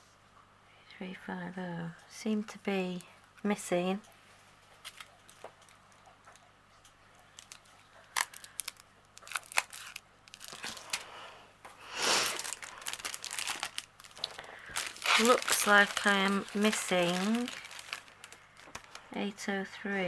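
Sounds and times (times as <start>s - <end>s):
plastic bags clicking and crinkling: 2.9s - 11.2s, 12.2s - 19.4s
plastic bag rustle: 4.3s - 6.4s, 7.3s - 19.4s.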